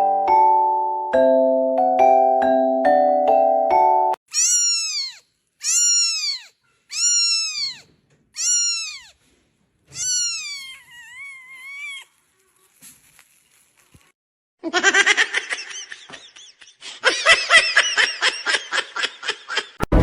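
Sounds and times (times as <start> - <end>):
cat meowing: 4.3 - 9.3, 9.9 - 12.8.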